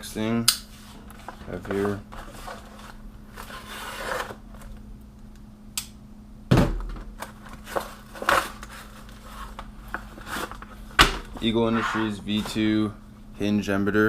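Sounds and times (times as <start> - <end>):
packaging rustling: 1.1 - 4.8, 7.2 - 12.6
loud thunk on table: 6.5 - 7.0.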